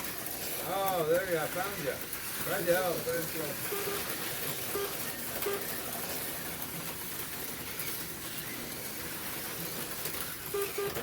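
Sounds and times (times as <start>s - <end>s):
slot cars running on track: 0.0s - 10.6s.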